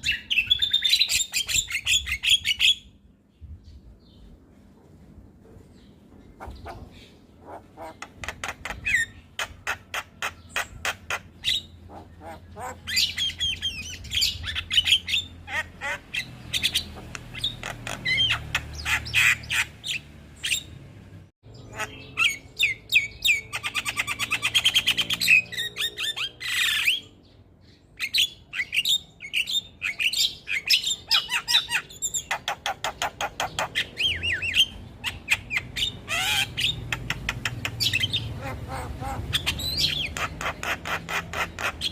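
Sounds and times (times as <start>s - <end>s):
myna bird chattering song: 5.8s - 20.8s, 21.5s - 27.1s, 27.9s - 41.9s.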